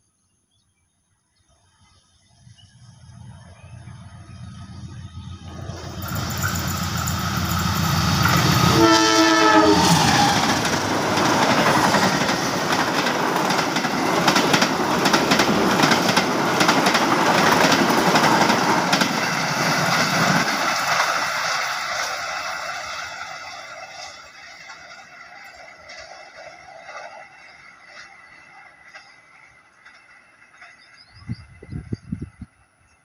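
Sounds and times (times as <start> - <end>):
diesel locomotive engine rumble: 2.7 - 33.0
train horn blast: 8.3 - 10.7
train wheels clattering over rail joints: 9.7 - 23.1.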